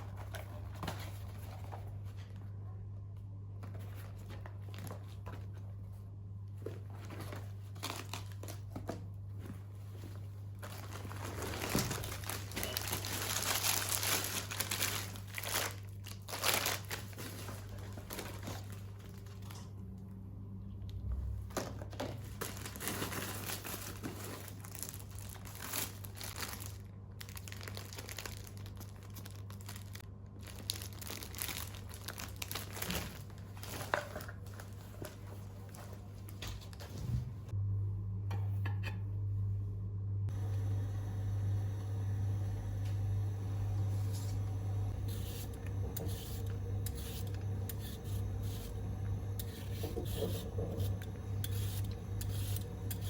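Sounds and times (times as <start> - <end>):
wrappers crinkling and rustling: 3.7 - 20.0, 21.5 - 37.0
wrapper tearing: 7.7 - 8.7, 10.6 - 19.6, 22.3 - 34.8
low hum: 37.2 - 53.0.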